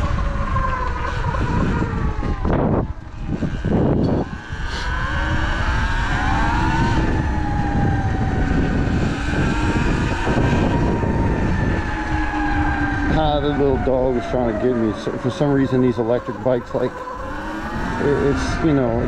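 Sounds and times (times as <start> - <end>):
electric motorbike whine: 0.0 - 19.0
wind on microphone: 0.0 - 19.0.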